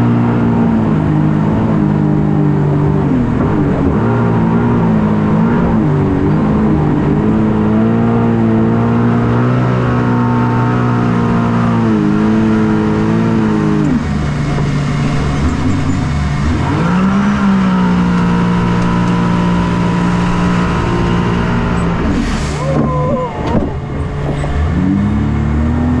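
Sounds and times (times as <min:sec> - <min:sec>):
watercraft engine revving: 0:00.0 - 0:26.0
rush of noise: 0:11.5 - 0:25.9.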